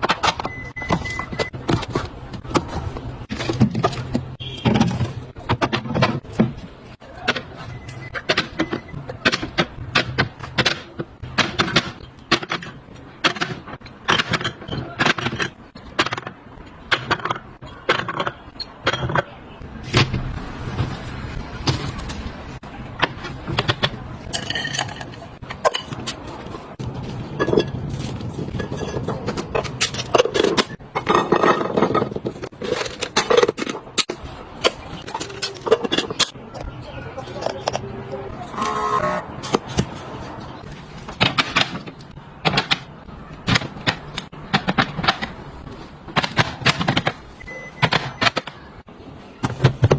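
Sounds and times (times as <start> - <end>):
containers handled in refrigerator: 0.0 - 16.1.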